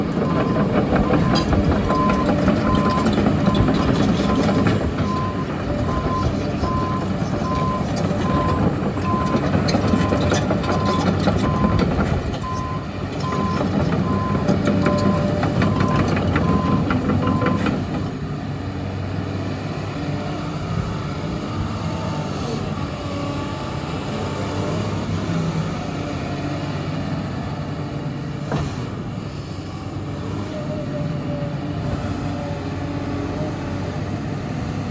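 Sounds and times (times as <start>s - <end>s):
excavator diesel engine running: 0.0s - 34.9s
machine clanking and clicking: 0.2s - 18.1s.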